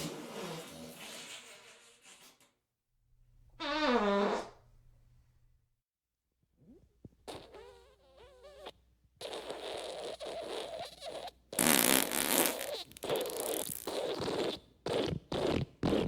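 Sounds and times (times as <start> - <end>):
fart sound effects: 3.6 - 4.6, 7.3 - 16.0.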